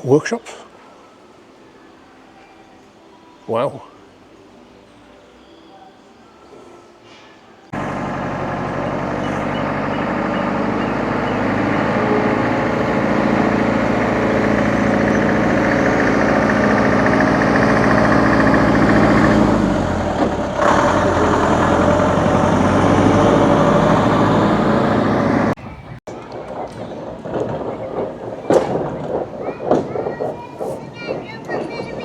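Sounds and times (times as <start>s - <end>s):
heavy vehicle engine running: 7.7s - 26.0s.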